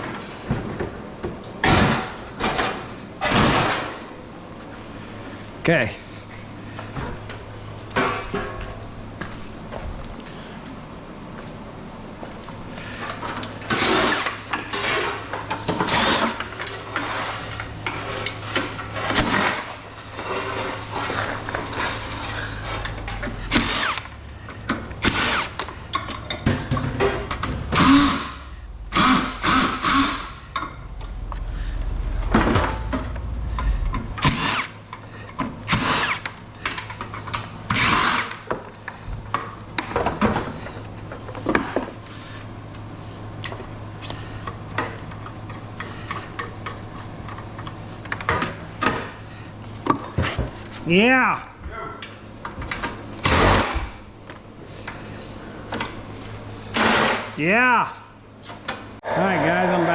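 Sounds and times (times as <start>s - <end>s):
steady low hum: 0.0s - 57.4s
metal clanks and rattles: 13.0s - 37.4s
power tool running in bursts: 13.7s - 24.2s, 25.0s - 25.7s, 27.7s - 30.6s, 34.2s - 34.8s, 35.7s - 36.4s, 37.7s - 38.5s, 53.2s - 54.0s.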